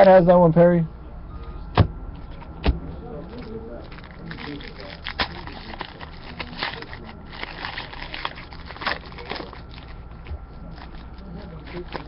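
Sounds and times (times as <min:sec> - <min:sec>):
low steady hum: 0:00.0 - 0:12.0
trading cards clicking and rustling: 0:03.3 - 0:12.0.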